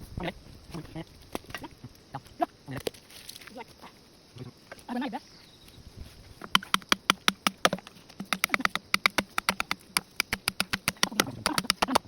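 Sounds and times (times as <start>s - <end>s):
rapid sharp knocks: 6.5s - 12.0s.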